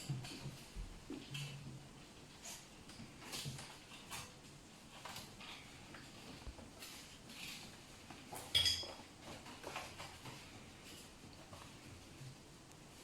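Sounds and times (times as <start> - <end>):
raccoons scrabbling and knocking: 0.0 - 12.3
metal clink ringing: 8.5 - 8.9.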